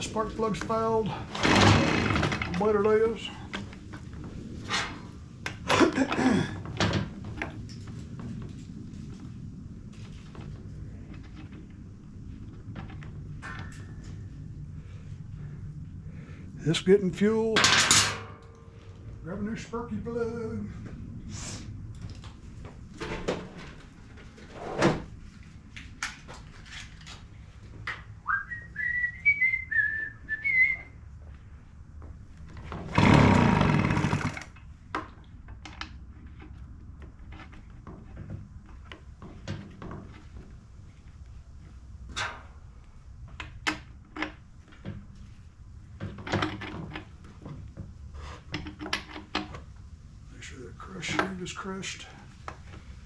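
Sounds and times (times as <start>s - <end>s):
man whistling: 28.2s - 31.0s.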